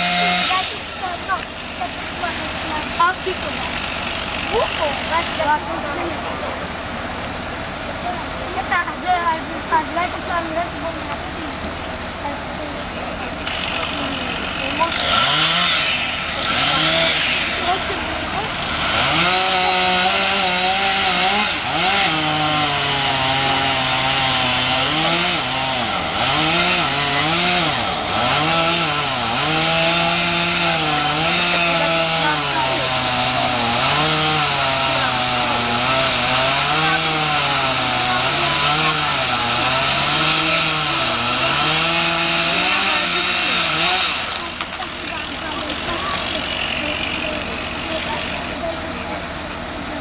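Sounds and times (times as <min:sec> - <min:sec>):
chainsaw cutting wood: 0:00.0 - 0:06.2, 0:13.3 - 0:50.0.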